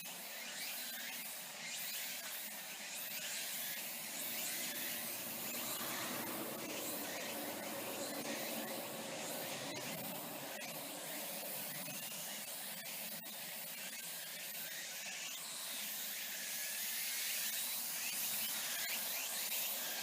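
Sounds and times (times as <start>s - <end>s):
high-pitched forest hiss: 0.4s - 20.0s
faint chirps: 3.4s - 13.1s.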